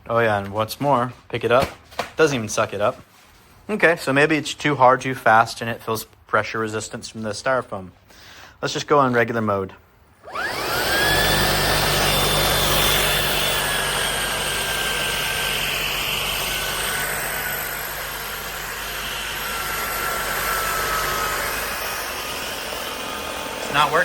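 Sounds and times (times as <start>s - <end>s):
low hum: 10.2s - 23.8s
vacuum motor whine: 10.2s - 24.0s.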